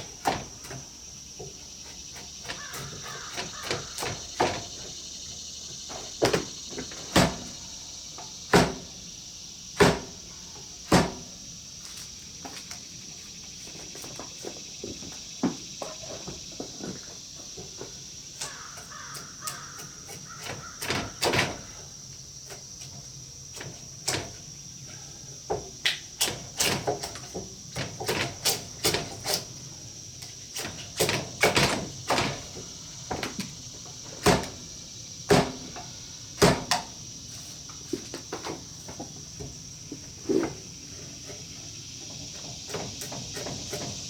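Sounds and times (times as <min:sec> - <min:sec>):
hand tool hewing wooden beam: 0:34.1 - 0:34.6, 0:35.3 - 0:35.8.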